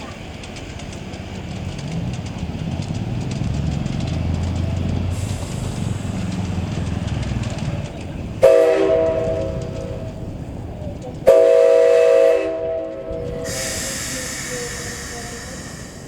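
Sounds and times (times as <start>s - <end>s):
train rumbling slowly: 0.0s - 16.0s
steam hiss: 4.9s - 7.1s, 13.2s - 16.0s
train whistle blast: 8.4s - 9.9s, 11.3s - 16.0s.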